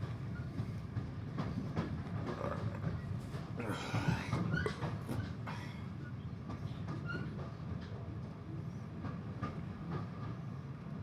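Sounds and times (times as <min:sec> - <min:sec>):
train wheels rumbling on track: 0:00.0 - 0:03.6, 0:04.2 - 0:11.0.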